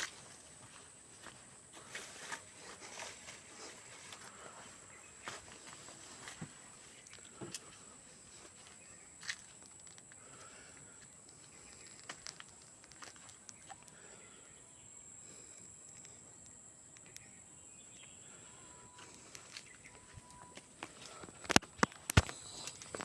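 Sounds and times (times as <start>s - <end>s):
thin steady high whine: 0.0s - 23.0s
faint ticks: 15.6s - 18.2s.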